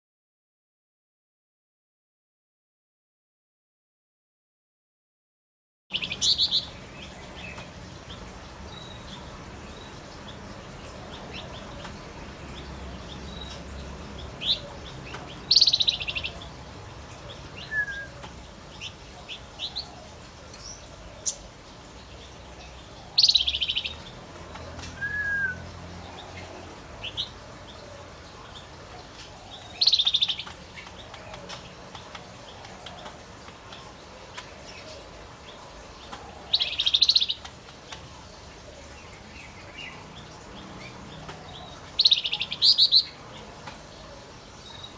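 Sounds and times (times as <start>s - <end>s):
bird singing chirping phrases: 5.9s - 44.9s
low whistled bird notes: 17.6s - 18.2s.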